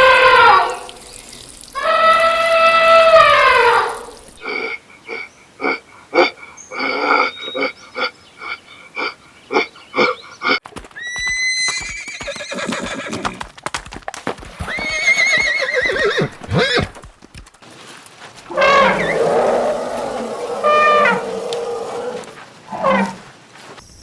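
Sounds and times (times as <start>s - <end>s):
horse whinnying: 1.8s - 7.7s, 10.0s - 13.4s, 14.6s - 17.0s, 18.5s - 23.2s
horse hooves clopping: 4.2s - 24.0s.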